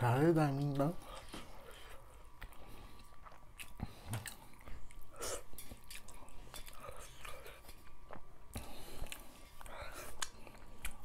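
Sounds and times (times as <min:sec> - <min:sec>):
chewing and wet mouth clicks: 0:02.4 - 0:11.0.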